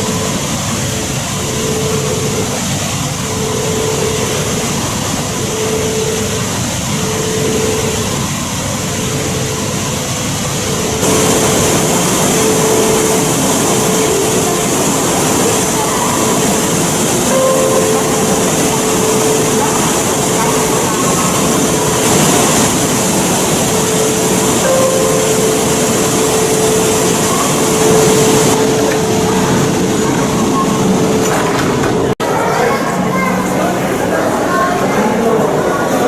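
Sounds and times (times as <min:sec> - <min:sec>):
high-speed train rushing: 0:00.0 - 0:36.0
faint tone: 0:10.6 - 0:31.2.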